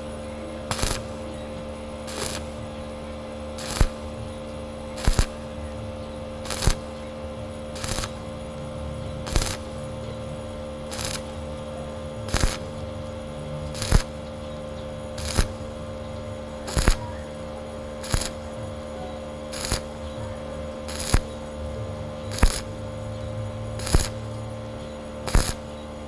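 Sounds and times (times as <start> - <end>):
steady hum: 0.0 - 26.0
welding arc crackling: 0.0 - 26.0.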